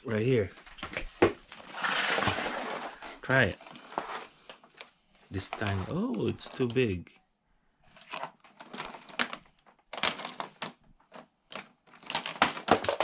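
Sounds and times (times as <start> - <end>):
plastic toys clattering: 1.6 - 4.3, 7.9 - 13.0.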